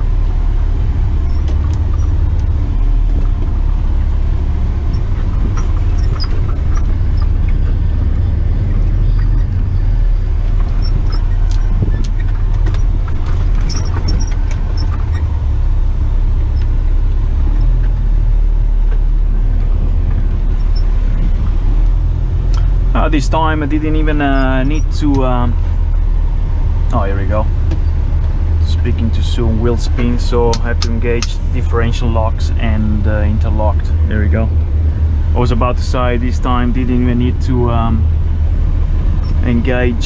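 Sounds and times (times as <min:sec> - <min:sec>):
diesel truck engine droning: 0:00.0 - 0:40.0
short rattles and clicks: 0:04.7 - 0:15.5.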